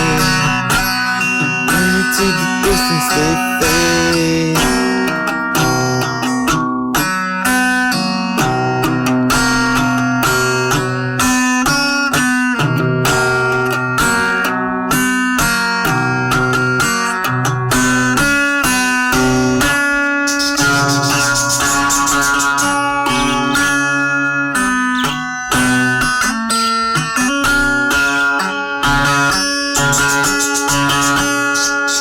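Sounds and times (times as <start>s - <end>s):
sustained bass notes: 0.0s - 6.5s
plucked guitar melody: 0.0s - 32.0s.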